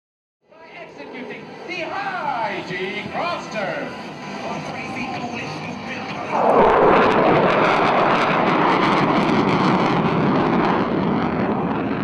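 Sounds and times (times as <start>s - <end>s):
fighter jet roar passing: 5.6s - 12.0s.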